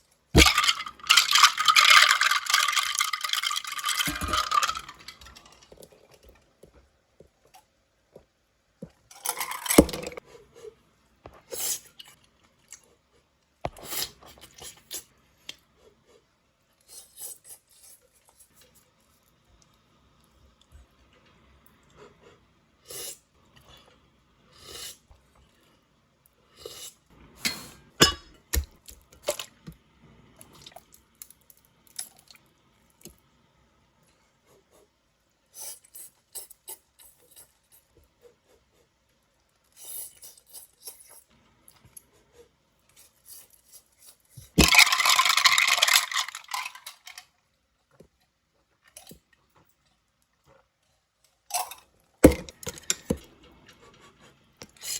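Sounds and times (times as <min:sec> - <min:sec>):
utensils clinking on tableware: 0:27.5 - 0:28.3.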